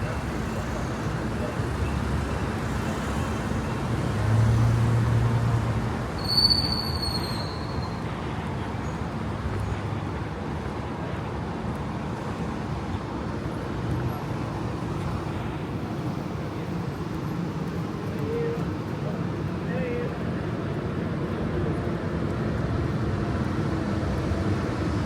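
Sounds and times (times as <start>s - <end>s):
street traffic noise: 0.0s - 25.0s
short high squeal: 6.2s - 8.0s.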